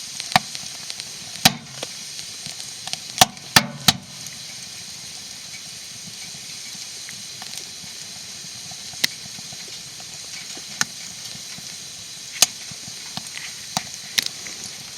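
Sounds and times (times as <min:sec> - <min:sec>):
burning wood popping: 0:00.0 - 0:14.9
wood fire hissing and crackling: 0:00.0 - 0:14.9.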